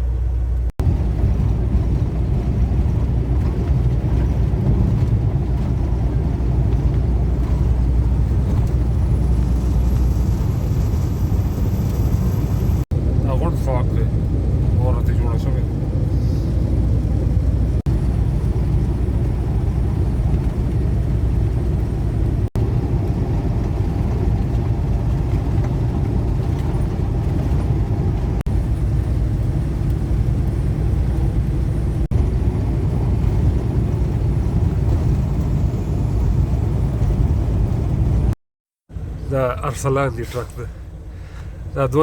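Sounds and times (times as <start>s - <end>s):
truck engine low rumble: 0.0s - 42.0s.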